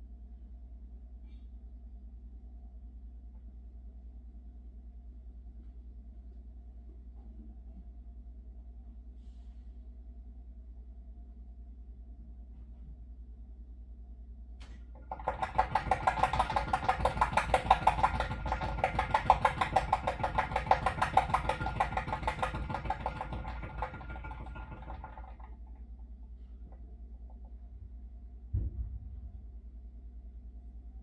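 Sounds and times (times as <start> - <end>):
water heater pipe chattering: 14.7 - 25.8.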